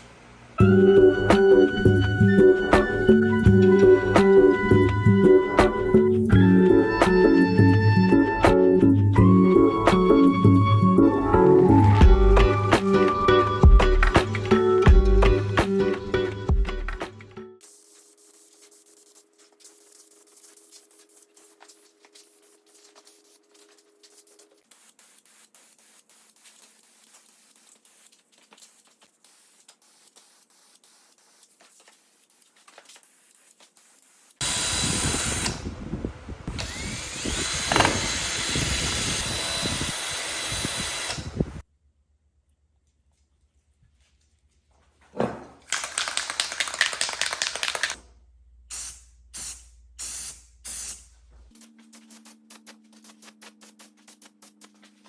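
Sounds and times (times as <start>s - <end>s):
handheld power tool running: 34.4s - 35.8s, 36.5s - 41.6s.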